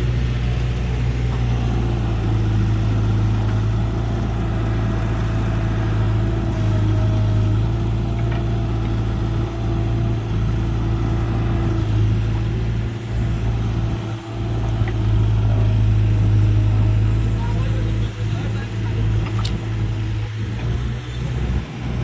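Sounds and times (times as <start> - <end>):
diesel engine running steadily: 0.0 - 22.0.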